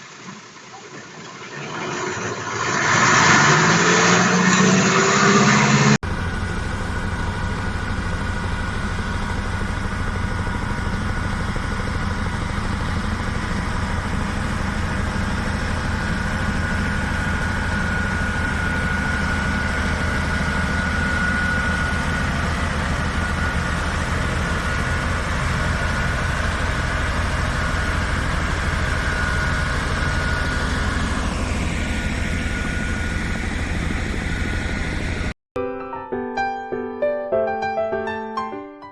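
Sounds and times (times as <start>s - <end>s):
machine engine idling: 4.7s - 35.4s.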